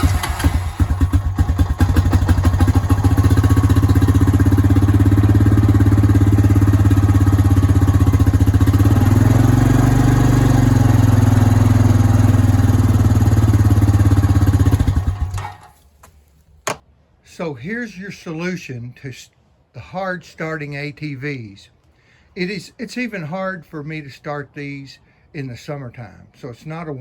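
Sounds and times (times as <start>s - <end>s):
quad bike engine idling: 0.0s - 15.8s.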